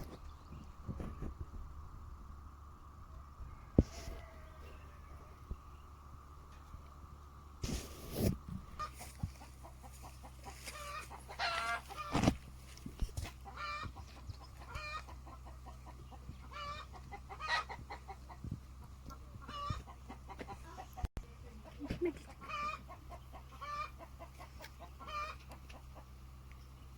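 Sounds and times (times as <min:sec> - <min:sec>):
chickens clucking: 0:08.4 - 0:26.9.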